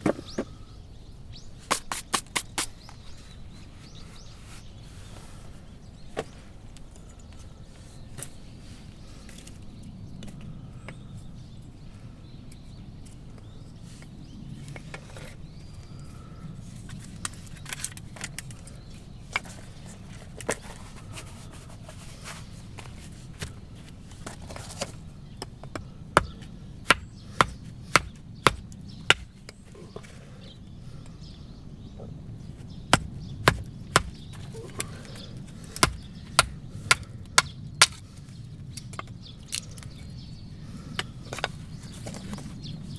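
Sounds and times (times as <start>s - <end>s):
axe chopping wood: 1.7s - 2.7s, 25.4s - 29.5s, 32.9s - 35.0s, 35.6s - 38.1s.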